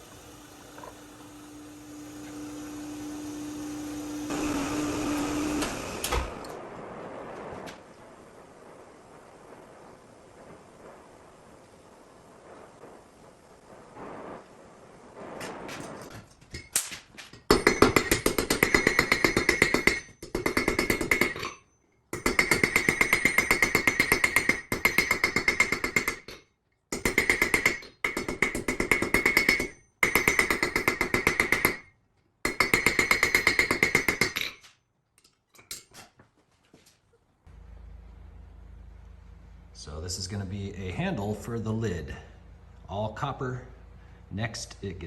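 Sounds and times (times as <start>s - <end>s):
power hammer striking metal: 0.0s - 6.6s, 17.5s - 21.6s, 22.2s - 26.4s, 27.0s - 31.9s, 32.5s - 34.5s.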